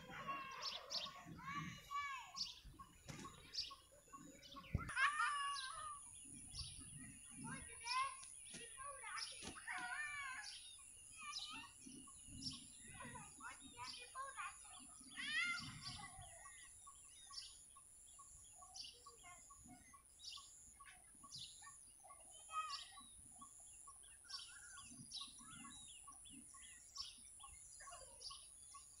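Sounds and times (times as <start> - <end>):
birds chirping and calling: 0.0 - 29.0.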